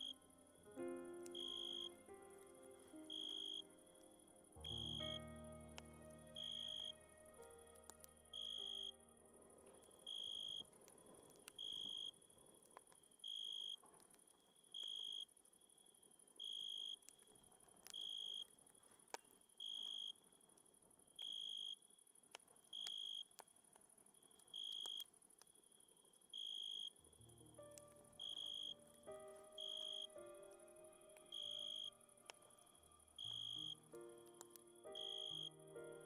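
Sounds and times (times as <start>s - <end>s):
cricket chirping: 0.0s - 12.4s, 13.1s - 13.8s, 14.5s - 18.6s, 19.2s - 20.4s, 21.1s - 23.4s, 24.2s - 36.0s
high insect hiss: 1.3s - 5.1s, 29.5s - 30.2s, 33.1s - 33.8s.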